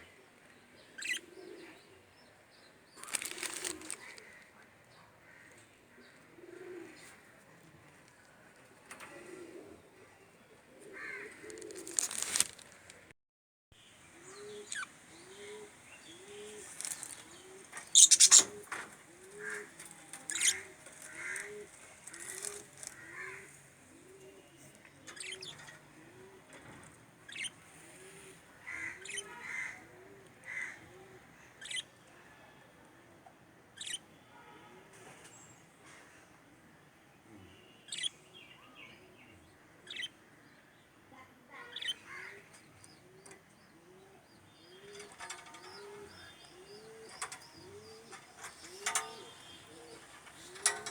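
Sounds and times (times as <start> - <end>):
bird cooing: 1.0 - 2.1, 6.2 - 7.1, 9.0 - 12.2, 14.2 - 22.8, 23.9 - 26.7, 43.0 - 50.9
high bird chirps and squeaks: 17.9 - 18.6, 20.3 - 20.6.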